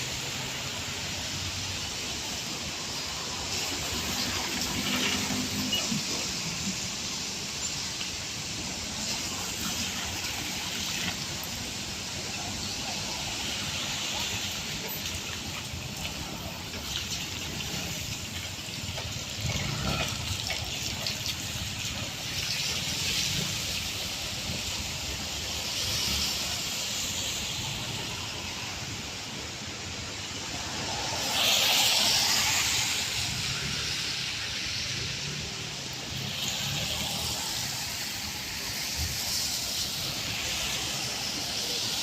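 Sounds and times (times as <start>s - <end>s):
tyres hissing on wet road: 0.0s - 42.0s.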